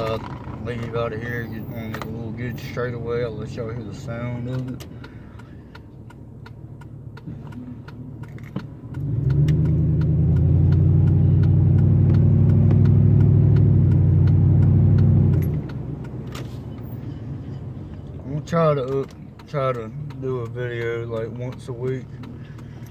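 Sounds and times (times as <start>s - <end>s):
truck engine revving: 7.6s - 17.9s.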